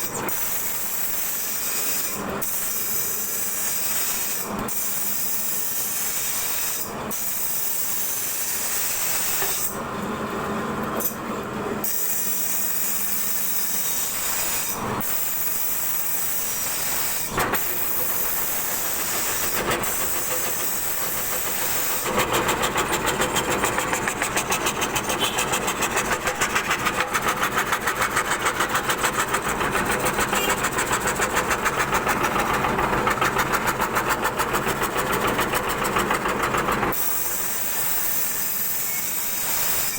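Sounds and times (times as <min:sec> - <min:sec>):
router cutting wood: 0:11.8 - 0:28.7.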